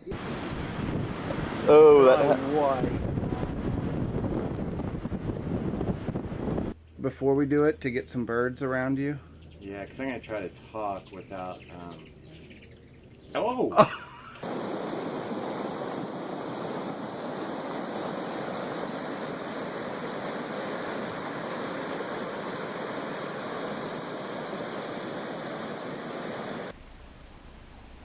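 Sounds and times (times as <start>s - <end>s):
steady rushing noise: 0.0s - 6.8s, 14.4s - 27.1s.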